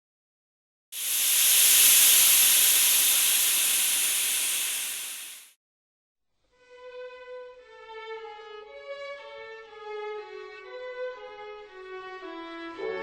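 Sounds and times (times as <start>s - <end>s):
loud steady hiss: 1.0s - 5.5s.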